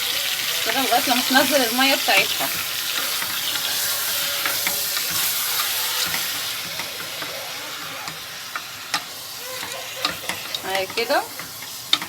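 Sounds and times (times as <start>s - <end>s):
meat sizzling in a pot: 0.0s - 12.0s.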